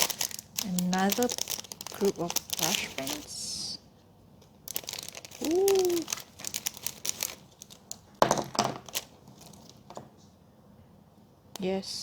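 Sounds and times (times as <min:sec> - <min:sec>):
plastic packaging crackling: 0:00.0 - 0:03.8, 0:04.4 - 0:10.0.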